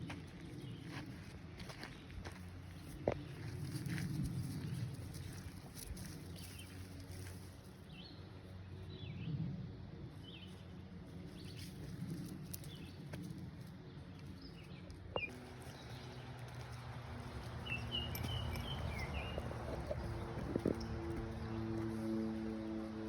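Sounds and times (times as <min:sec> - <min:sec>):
low outdoor rumble: 0:00.0 - 0:23.0
birds chirping: 0:13.9 - 0:22.6.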